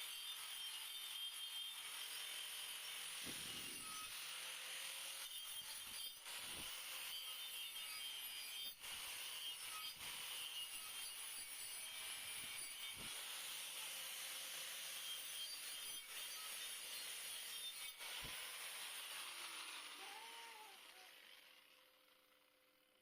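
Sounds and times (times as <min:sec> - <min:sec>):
welding arc hissing and crackling: 0:03.2 - 0:04.3.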